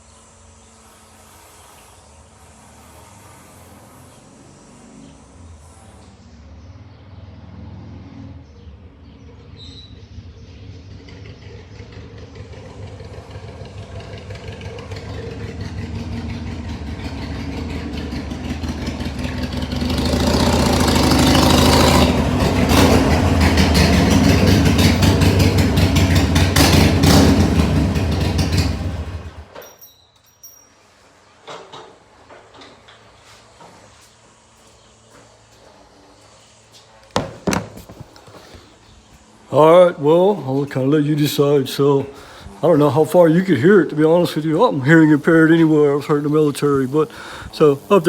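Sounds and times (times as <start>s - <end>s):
motorcycle engine running: 8.5s - 29.7s, 34.0s - 48.0s.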